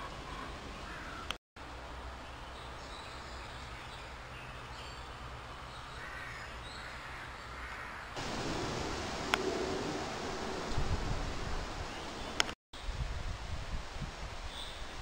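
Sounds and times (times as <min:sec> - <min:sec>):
outdoor background hiss: 0:00.0 - 0:15.0
low rumble: 0:08.2 - 0:12.2.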